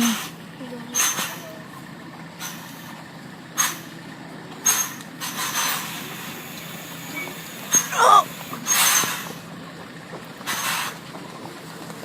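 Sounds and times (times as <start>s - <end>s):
lorry engine running: 0.0s - 12.0s
lorry air brakes hissing: 1.0s - 1.6s, 2.4s - 3.0s, 3.6s - 4.0s, 4.6s - 9.4s, 10.5s - 11.0s.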